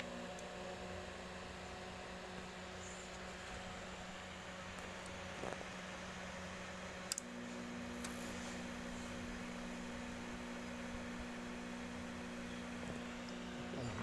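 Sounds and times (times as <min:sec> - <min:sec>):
microwave oven humming: 0:00.0 - 0:14.0
higher hum tone: 0:08.8 - 0:14.0.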